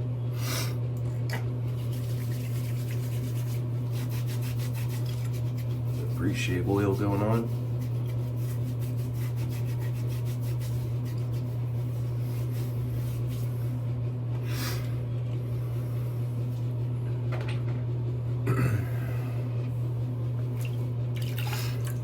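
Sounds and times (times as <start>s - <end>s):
steady low hum: 0.0s - 22.0s
hands rubbing face: 1.7s - 13.9s.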